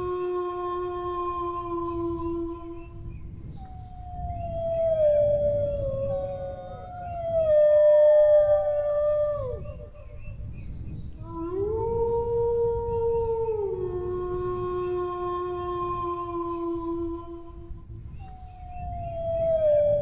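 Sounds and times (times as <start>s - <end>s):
dog howling: 4.0s - 10.2s, 11.2s - 17.6s.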